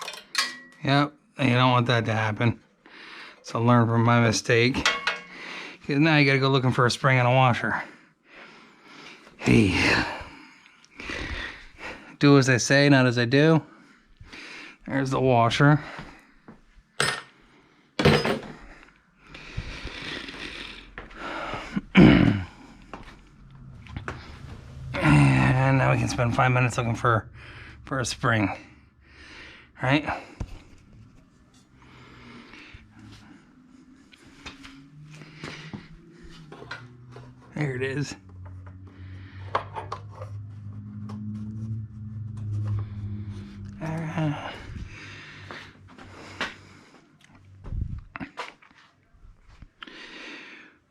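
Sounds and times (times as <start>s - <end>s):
metal parts clinking: 0.0s - 0.9s, 4.8s - 5.4s
metal tools clattering: 0.0s - 0.9s, 4.8s - 5.5s
steady low hum: 18.8s - 48.2s.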